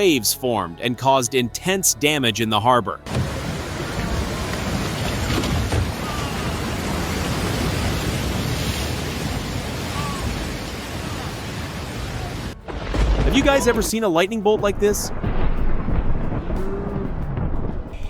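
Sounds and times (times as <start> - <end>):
heavy waves: 3.0 - 15.5
storm wind: 3.1 - 18.0.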